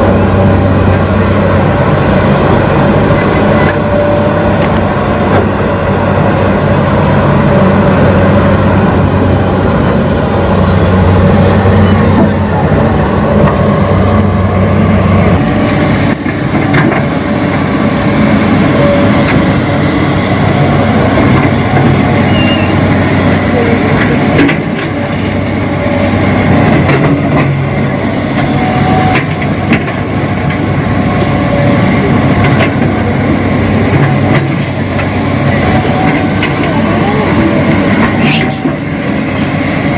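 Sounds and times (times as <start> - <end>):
model excavator engine drone: 0.0 - 39.9.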